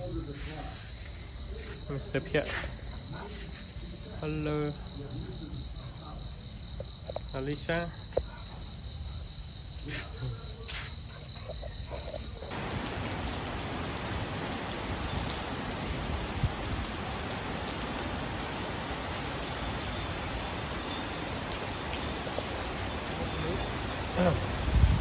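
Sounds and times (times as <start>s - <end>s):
insects trilling: 0.0s - 25.0s
rain hissing: 12.5s - 25.0s.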